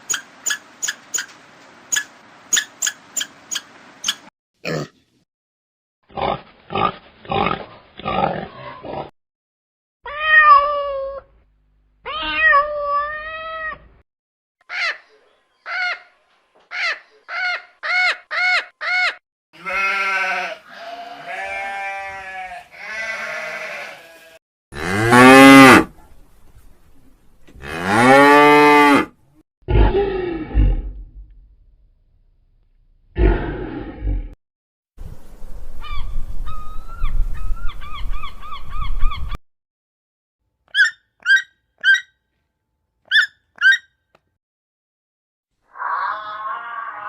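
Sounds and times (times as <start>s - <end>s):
animal calls: 40.7s - 42.1s, 43.1s - 43.9s, 45.7s - 47.0s
long deep animal calls: 45.6s - 47.0s.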